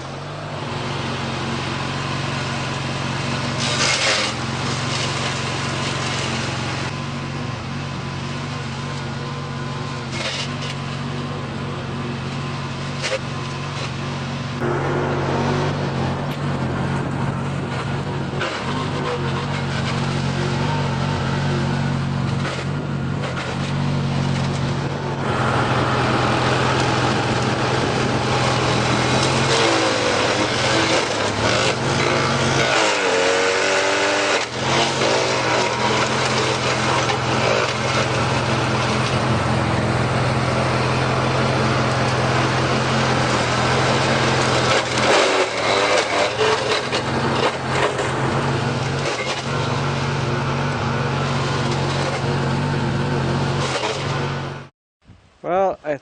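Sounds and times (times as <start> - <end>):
lawn tractor engine under load: 0.0 - 56.0
wood cracking and splintering: 3.5 - 6.9, 26.8 - 39.3, 41.4 - 50.8.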